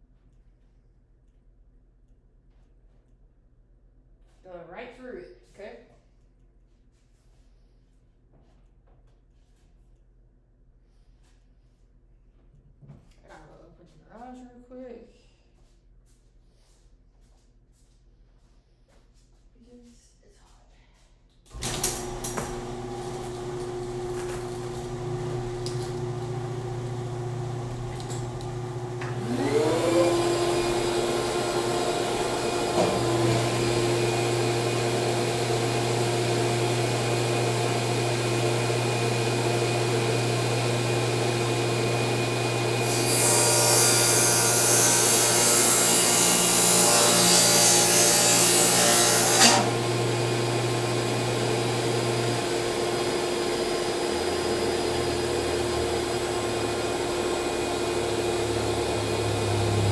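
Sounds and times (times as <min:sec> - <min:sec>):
motor hum: 0:21.5 - 0:43.0
saw blade cutting plywood: 0:21.5 - 0:59.9
table saw whining: 0:21.5 - 0:59.9.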